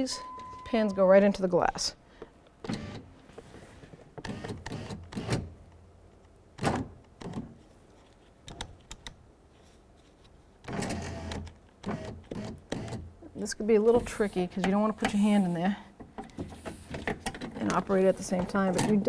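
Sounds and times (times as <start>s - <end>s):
handling clicks and knocks: 16.0s - 19.0s.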